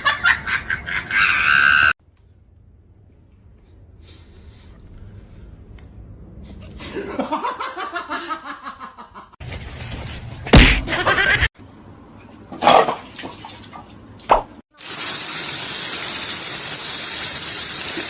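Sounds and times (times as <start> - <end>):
person laughing: 0.0 - 1.9, 10.6 - 11.5
loud sharp smack: 10.5 - 11.0.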